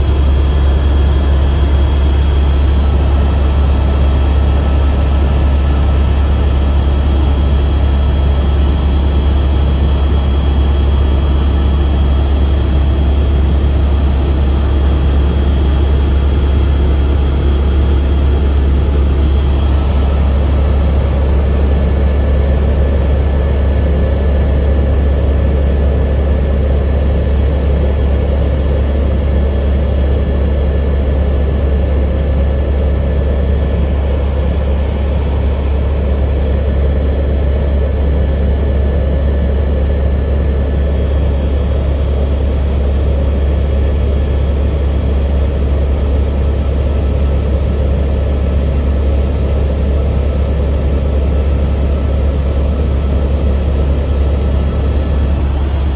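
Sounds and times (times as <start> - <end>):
helicopter rotor and engine drone: 0.0 - 55.9.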